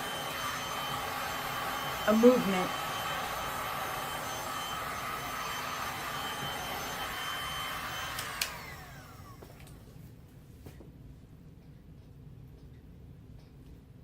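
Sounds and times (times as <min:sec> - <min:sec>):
heat gun blowing: 0:00.0 - 0:09.7
heat gun switch click: 0:08.0 - 0:08.8.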